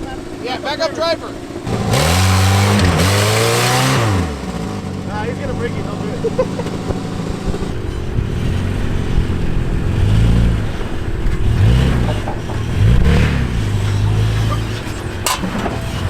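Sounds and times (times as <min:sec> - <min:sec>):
vehicle engine revving under load: 0:00.0 - 0:16.0.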